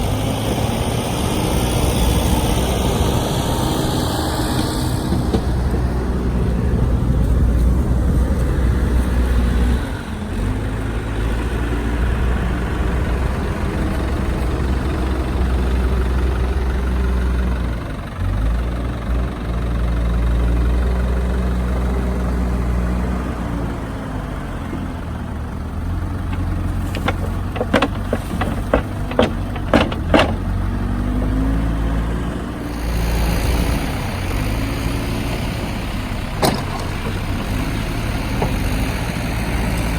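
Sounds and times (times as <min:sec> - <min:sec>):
tractor diesel engine revving: 0:00.0 - 0:39.9
sharp knocks: 0:26.3 - 0:30.6.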